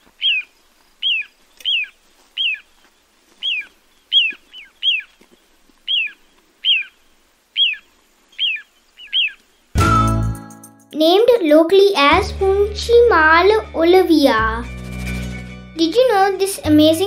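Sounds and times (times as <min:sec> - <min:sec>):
plover whistled falling call: 0:00.2 - 0:02.6, 0:03.4 - 0:05.1, 0:05.9 - 0:07.8, 0:08.4 - 0:10.3.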